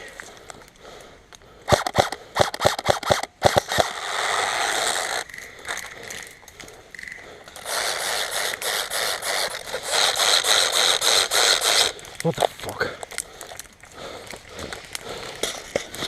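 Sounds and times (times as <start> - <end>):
airsoft gun firing sharp cracks: 1.7 - 5.4.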